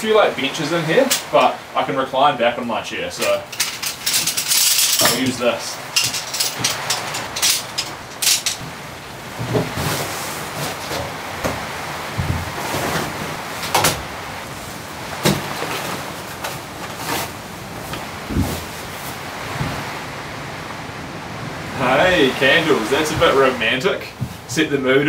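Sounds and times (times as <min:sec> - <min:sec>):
heavy rain on roof: 0:00.0 - 0:02.3, 0:03.0 - 0:25.0
camp chair poles fitted together: 0:03.2 - 0:08.8
camping gear clicks and knocks: 0:03.2 - 0:08.8, 0:09.4 - 0:14.1, 0:15.2 - 0:19.9.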